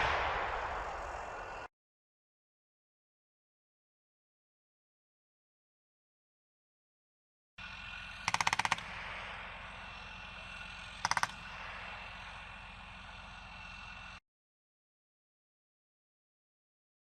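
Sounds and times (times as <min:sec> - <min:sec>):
low engine rumble: 0:00.0 - 0:01.7, 0:07.6 - 0:14.2
machine-gun fire bursts: 0:08.2 - 0:09.3, 0:11.0 - 0:11.4.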